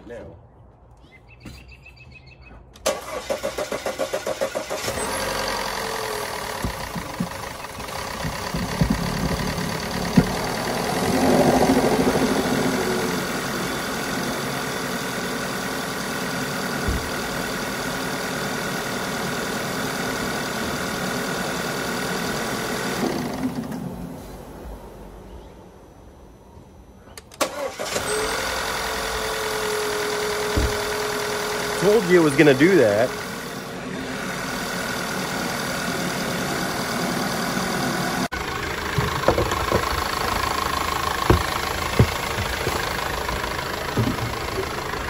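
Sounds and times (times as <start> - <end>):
starter motor cranking: 2.8 - 12.7, 38.3 - 45.0
car engine idling: 2.8 - 45.0.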